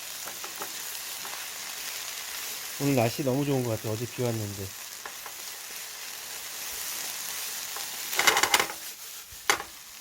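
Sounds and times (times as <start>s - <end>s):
onions sizzling in a pan: 0.0s - 10.0s
spatula scraping a pan: 6.7s - 9.8s.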